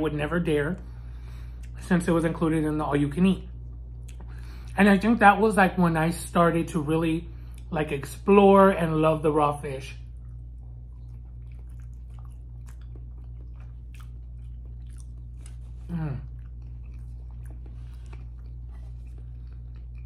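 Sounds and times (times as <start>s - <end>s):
steady low hum: 0.0s - 20.0s
wet chewing mouth clicks: 4.0s - 4.4s, 10.0s - 20.0s
person humming mm: 15.9s - 16.3s.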